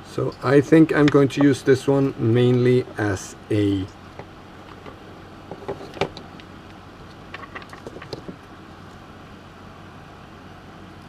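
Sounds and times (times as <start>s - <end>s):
faint background hum: 0.0s - 11.0s
small tools clicking and tapping: 7.3s - 8.4s.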